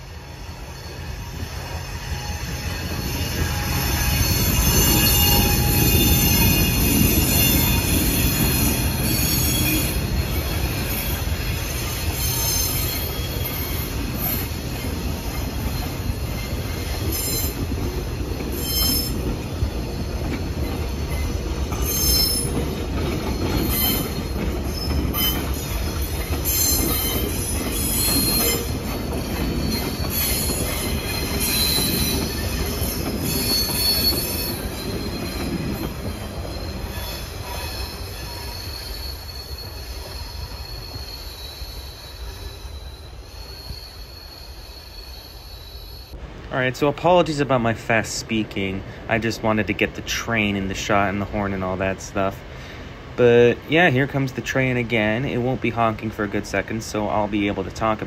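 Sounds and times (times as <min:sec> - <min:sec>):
steel wheels squealing: 0:00.0 - 0:46.2
train rumbling past: 0:00.0 - 0:58.0.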